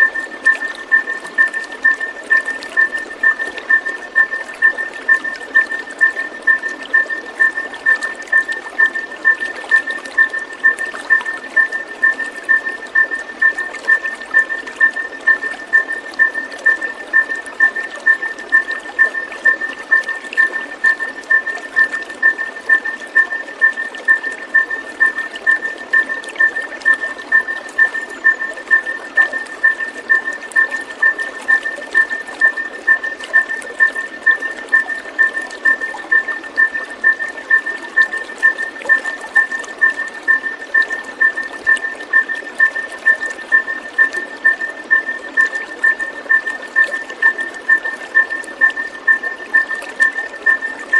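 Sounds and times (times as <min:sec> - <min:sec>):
water trickling: 0:00.0 - 0:50.9.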